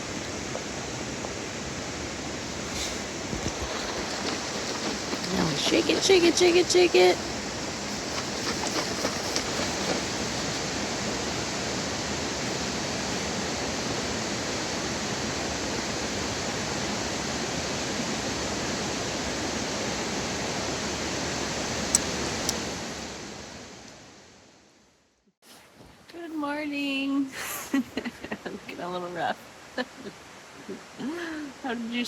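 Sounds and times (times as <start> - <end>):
steady rushing noise: 0.0 - 24.3.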